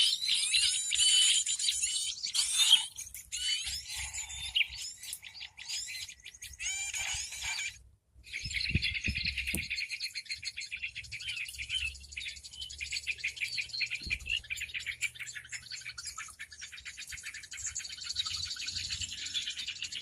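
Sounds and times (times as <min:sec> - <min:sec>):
many small birds chirping: 0:00.0 - 0:20.0.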